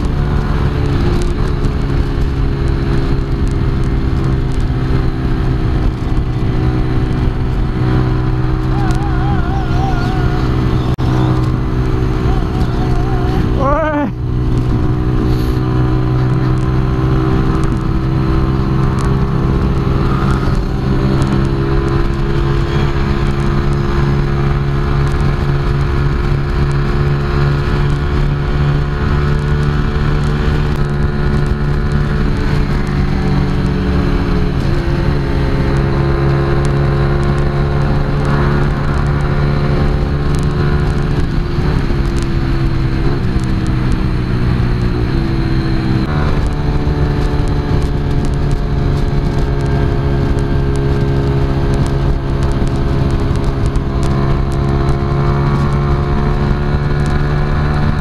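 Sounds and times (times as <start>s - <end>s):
motorcycle engine at high revs: 0.0s - 58.0s
wind rush: 0.0s - 58.0s.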